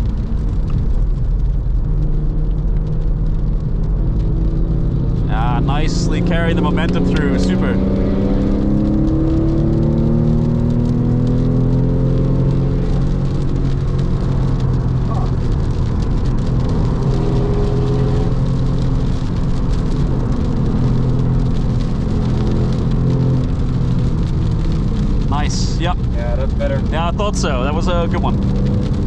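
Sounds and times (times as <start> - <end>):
car engine running hard: 0.0 - 29.0
wet tyres hissing: 10.0 - 29.0.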